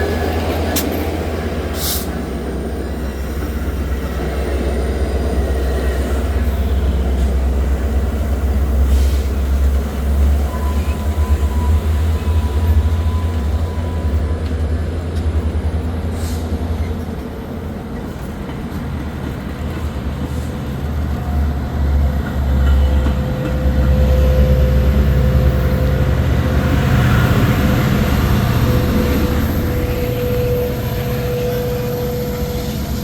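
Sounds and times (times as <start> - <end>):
diesel locomotive rumbling: 0.0 - 33.0.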